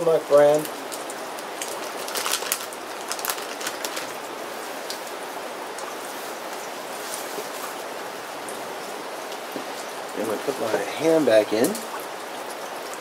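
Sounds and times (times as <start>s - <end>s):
rain hissing: 0.0s - 13.0s
sharp crackles and clicks: 1.6s - 4.2s.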